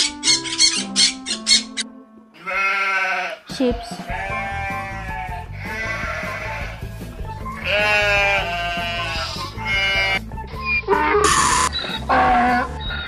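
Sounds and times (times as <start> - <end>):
sheep bleating: 2.4 - 3.5, 4.1 - 6.9, 7.6 - 10.2
music with low beat: 3.5 - 13.0.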